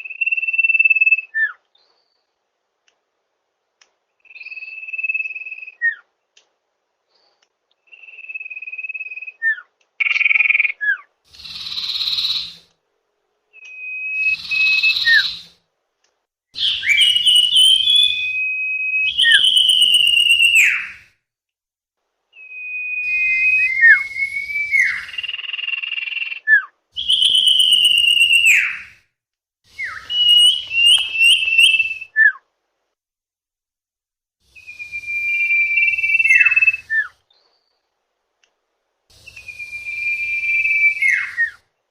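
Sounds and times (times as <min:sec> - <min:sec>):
bird whistling song: 0:00.0 - 0:02.2, 0:04.2 - 0:06.0, 0:07.8 - 0:12.7, 0:13.6 - 0:15.6, 0:16.6 - 0:21.1, 0:22.4 - 0:29.0, 0:29.7 - 0:32.4, 0:34.5 - 0:37.7, 0:39.1 - 0:41.7
bird harsh hissing notes: 0:11.3 - 0:12.6, 0:14.2 - 0:15.6, 0:23.0 - 0:25.4, 0:29.7 - 0:32.0, 0:34.4 - 0:37.1, 0:39.1 - 0:41.5.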